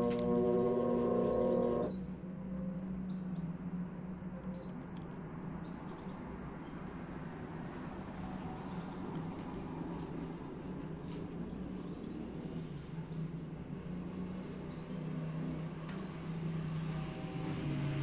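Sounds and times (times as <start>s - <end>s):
low hum: 0.0s - 2.0s
washing machine motor whine: 0.0s - 2.0s.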